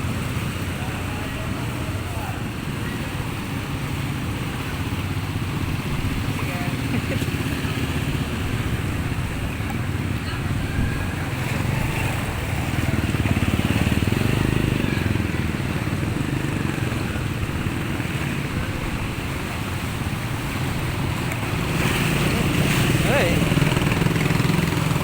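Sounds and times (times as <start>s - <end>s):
water churning and sloshing: 0.0s - 25.0s
small vehicle engine running: 10.8s - 25.0s.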